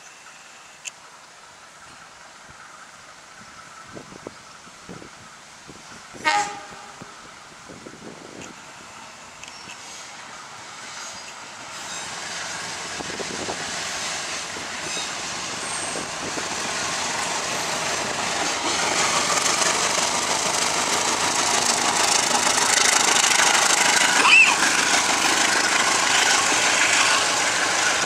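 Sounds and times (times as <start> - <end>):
diesel locomotive engine: 0.0 - 28.0
train coaches rolling: 0.0 - 28.0.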